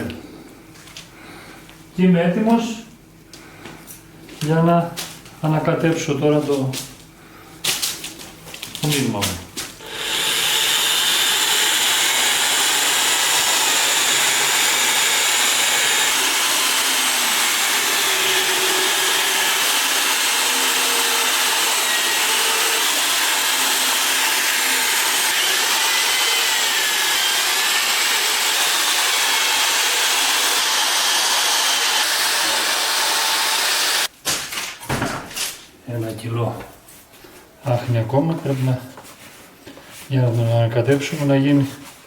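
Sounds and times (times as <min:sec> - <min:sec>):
electric drill mixer whining: 0:09.8 - 0:34.1.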